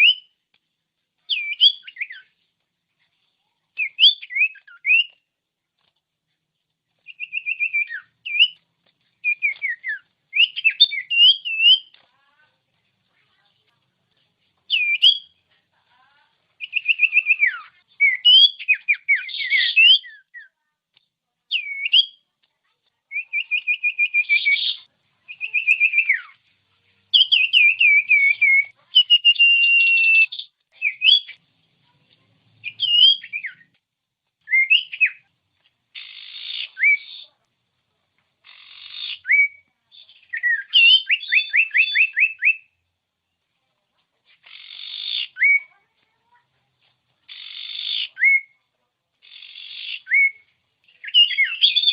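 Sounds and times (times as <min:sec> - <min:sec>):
bird singing whistled phrases: 0:00.0 - 0:00.3, 0:01.3 - 0:02.3, 0:03.8 - 0:05.2, 0:07.0 - 0:08.6, 0:09.2 - 0:12.0, 0:14.7 - 0:15.4, 0:16.6 - 0:20.6, 0:21.5 - 0:22.2, 0:23.1 - 0:26.4, 0:27.1 - 0:31.4, 0:32.6 - 0:33.7, 0:34.4 - 0:35.2, 0:36.0 - 0:37.3, 0:38.5 - 0:42.8, 0:44.5 - 0:45.8, 0:47.3 - 0:48.6, 0:49.3 - 0:51.9.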